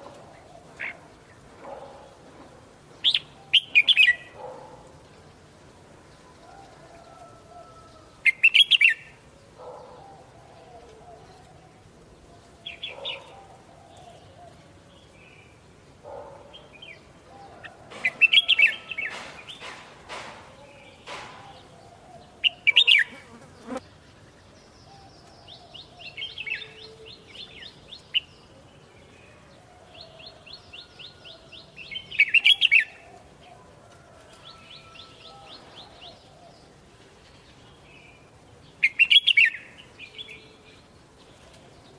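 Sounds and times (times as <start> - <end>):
sharp knocks: 19.0 - 21.7.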